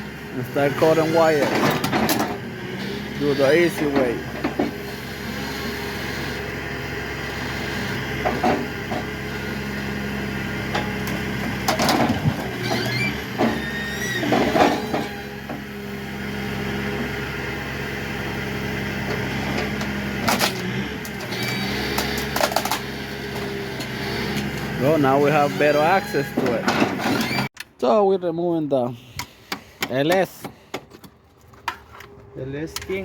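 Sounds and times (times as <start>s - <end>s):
engine running: 0.0s - 27.5s
metal clanks and knocks: 1.4s - 2.4s, 10.7s - 13.6s, 14.2s - 15.6s, 26.2s - 27.4s
short squeals: 12.5s - 15.6s, 25.2s - 27.5s.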